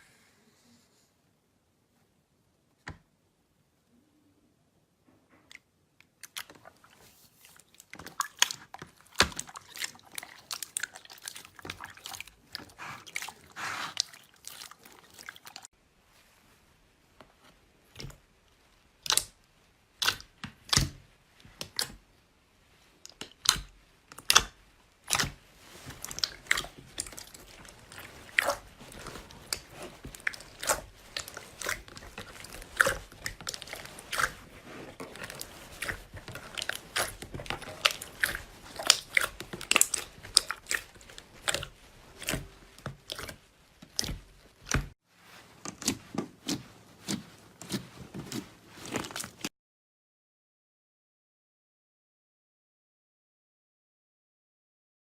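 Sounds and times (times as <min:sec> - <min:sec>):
slime squeezed by hand crackling: 0:24.2 - 0:44.9.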